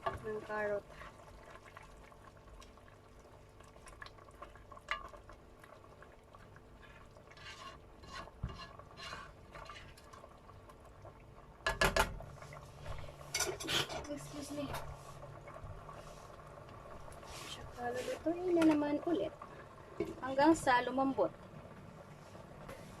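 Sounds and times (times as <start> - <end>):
utensil scraping a pot: 6.8 - 10.1.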